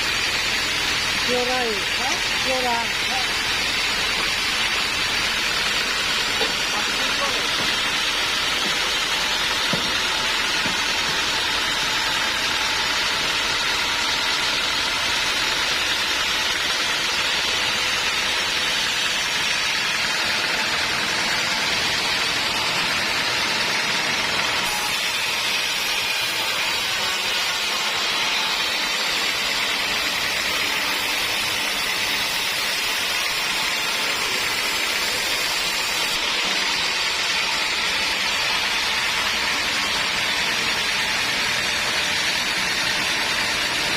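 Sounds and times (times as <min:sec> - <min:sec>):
band saw cutting log: 0:00.0 - 0:43.9.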